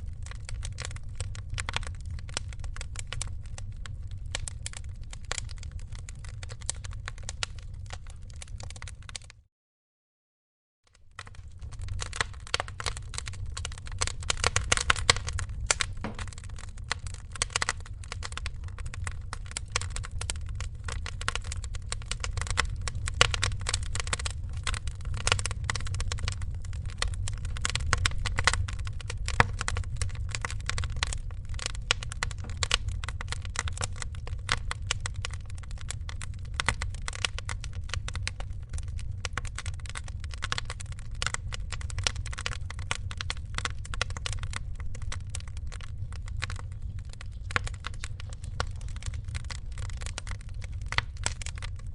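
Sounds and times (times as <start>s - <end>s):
wood fire crackling and popping: 0.0s - 9.4s, 10.9s - 51.9s
steady low rumble: 11.2s - 51.9s.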